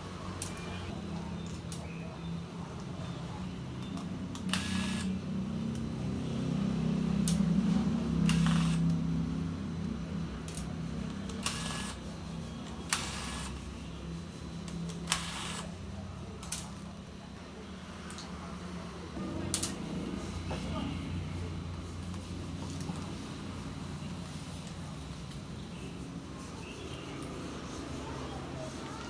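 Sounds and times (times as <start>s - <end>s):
small tools clicking and scraping: 0.4s - 1.9s, 3.8s - 5.9s, 7.3s - 9.0s, 9.8s - 13.7s, 14.6s - 15.7s.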